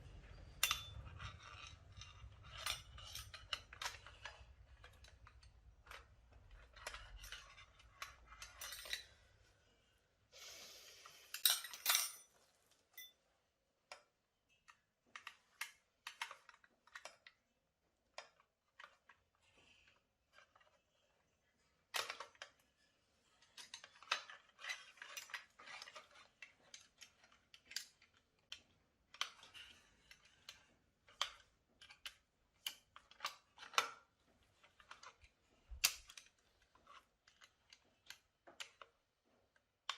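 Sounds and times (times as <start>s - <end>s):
metal tools clicking and clinking: 0.2s - 9.2s, 11.3s - 13.2s.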